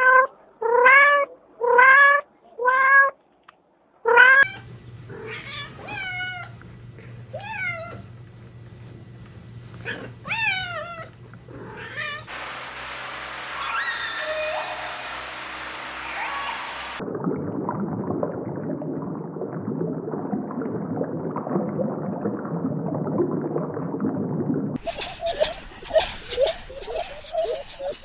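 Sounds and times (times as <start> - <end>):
cat meowing: 0.0 - 3.2, 4.1 - 6.6, 7.3 - 8.1, 9.8 - 12.3
low steady hum: 4.4 - 13.0.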